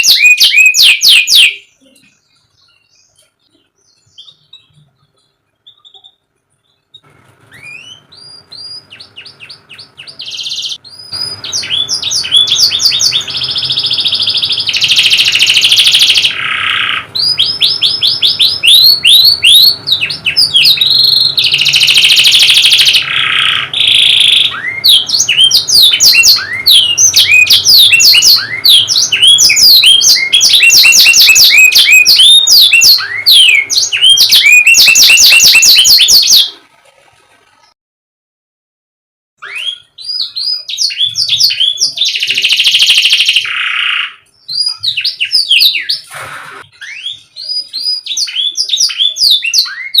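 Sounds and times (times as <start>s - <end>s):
canary singing: 0.0s - 36.6s, 39.4s - 50.0s.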